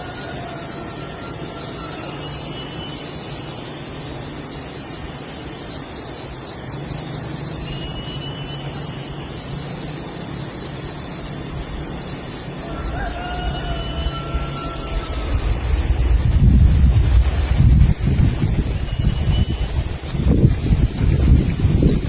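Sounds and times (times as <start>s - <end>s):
insect chorus trilling: 0.0s - 22.0s.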